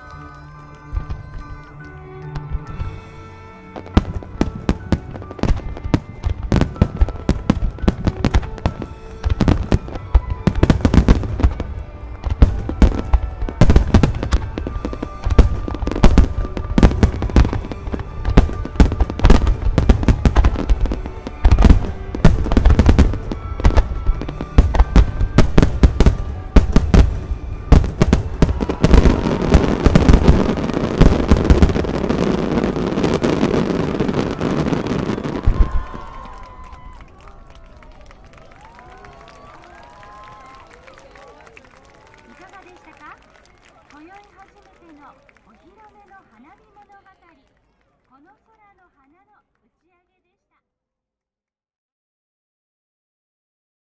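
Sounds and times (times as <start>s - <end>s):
music playing: 0.0s - 37.4s.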